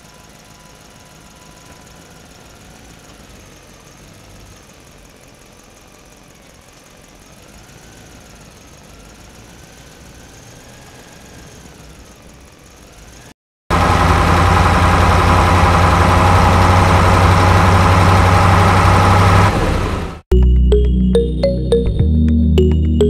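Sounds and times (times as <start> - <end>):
small motor running: 0.0 - 13.3.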